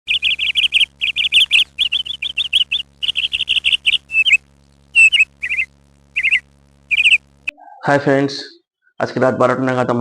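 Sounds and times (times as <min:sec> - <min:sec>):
bird chirping: 0:00.1 - 0:07.8.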